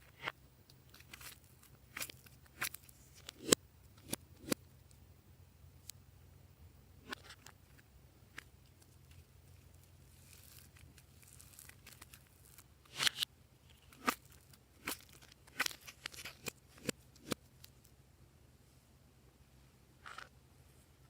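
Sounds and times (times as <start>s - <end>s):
slime rustling: 8.6s - 12.7s
slime popping and crackling: 9.8s - 13.2s.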